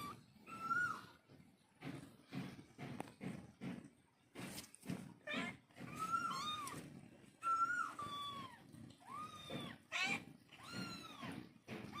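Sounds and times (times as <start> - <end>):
cats meowing: 0.0 - 1.3, 5.2 - 12.0.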